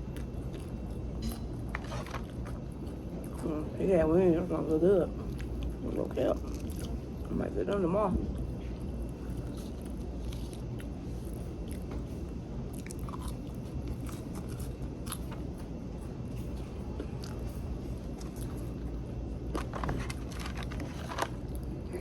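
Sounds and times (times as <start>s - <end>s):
chewing crispy fried fish: 0.0s - 3.8s, 5.1s - 22.0s
steady low hum: 0.0s - 22.0s.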